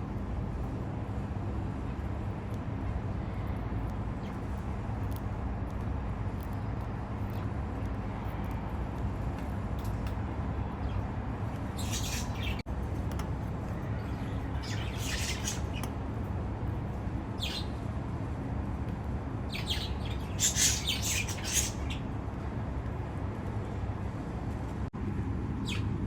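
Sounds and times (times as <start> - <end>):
steady low hum: 0.0 - 26.0
budgerigar chicks squawking: 14.6 - 15.8.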